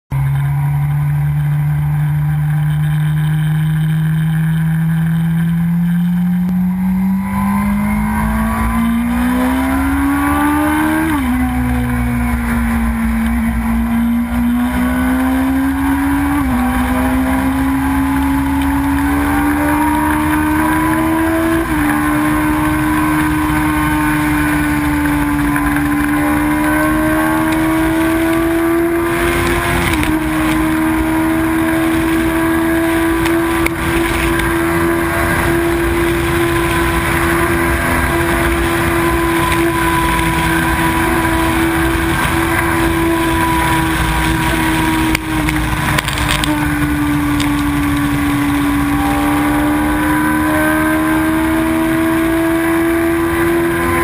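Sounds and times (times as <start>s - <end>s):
motorcycle engine accelerating: 0.1s - 54.0s
rushing wind: 6.6s - 54.0s.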